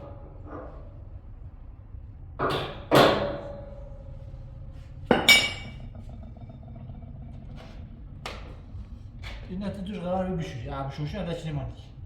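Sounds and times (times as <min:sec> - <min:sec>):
hammer striking metal: 0:05.1 - 0:05.7.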